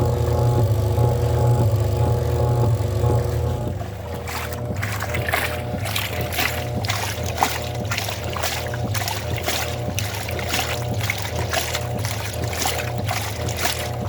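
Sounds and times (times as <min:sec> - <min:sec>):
washing machine motor hum: 0:00.0 - 0:14.0
water sloshing: 0:03.3 - 0:14.0.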